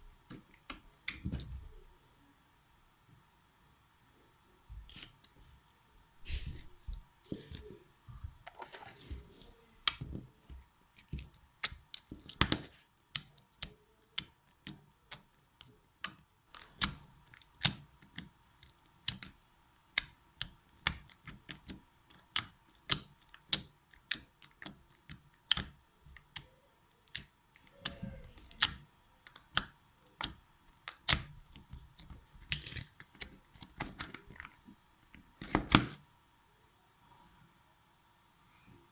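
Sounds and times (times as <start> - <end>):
slime squishing: 8.5 - 35.8.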